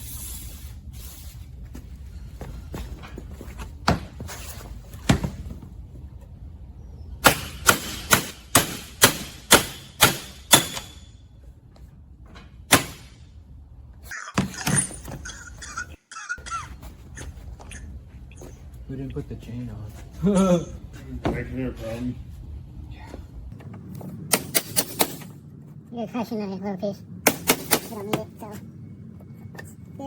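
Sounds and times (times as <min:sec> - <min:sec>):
hammering metal on metal: 0:07.2 - 0:11.1.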